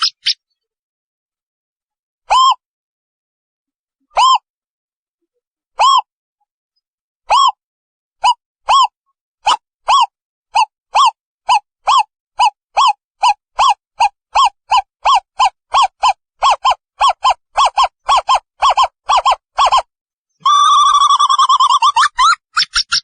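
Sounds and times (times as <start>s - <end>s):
owl wavering trill: 0.0s - 0.5s, 5.8s - 6.1s, 7.3s - 7.6s, 9.5s - 23.0s.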